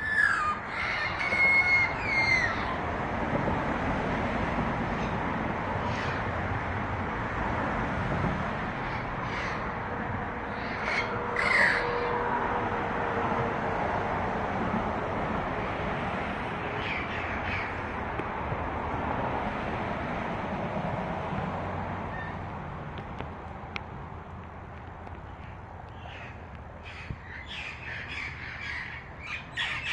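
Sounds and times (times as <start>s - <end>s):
parrot calls: 0.0s - 2.8s, 10.5s - 12.1s, 26.0s - 29.9s.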